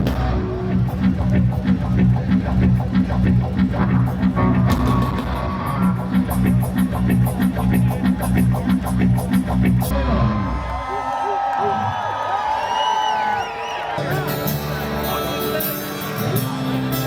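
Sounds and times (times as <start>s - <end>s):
live rock band playing: 0.0s - 10.4s, 14.0s - 17.0s.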